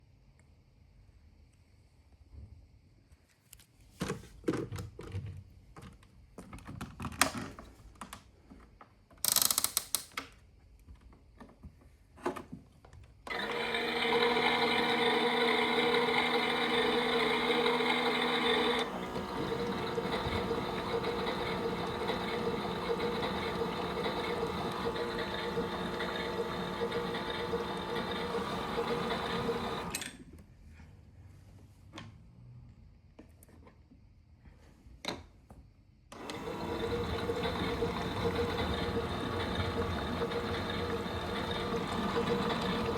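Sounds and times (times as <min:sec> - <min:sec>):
washing machine running hum: 0:13.3 - 0:30.1, 0:36.1 - 0:42.9.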